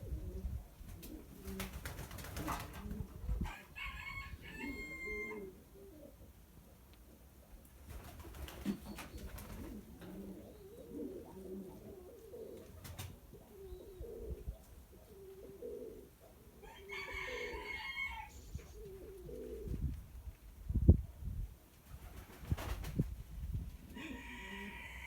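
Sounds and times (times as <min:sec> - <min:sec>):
pigeons cooing: 0:00.0 - 0:06.3, 0:08.3 - 0:19.9.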